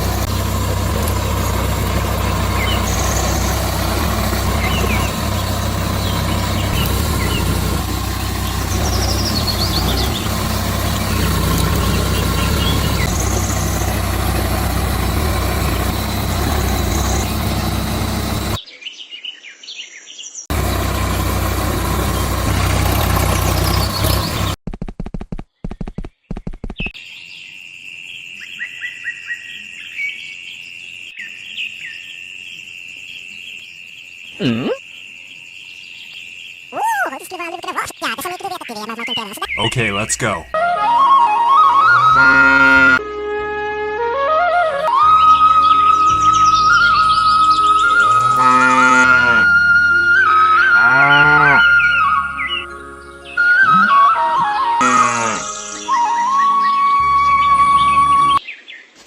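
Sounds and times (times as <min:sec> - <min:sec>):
engine running: 0:00.0 - 0:18.6, 0:20.5 - 0:24.6, 0:39.4 - 0:58.4
birds chirping: 0:00.0 - 0:24.6, 0:28.2 - 0:43.3, 0:44.6 - 0:59.0.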